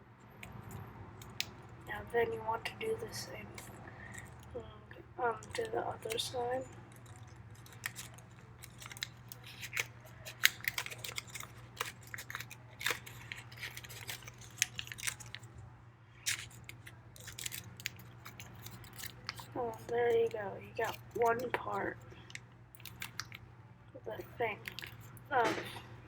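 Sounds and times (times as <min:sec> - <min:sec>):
paper folding and crinkling: 0:05.2 - 0:23.4, 0:24.2 - 0:26.0.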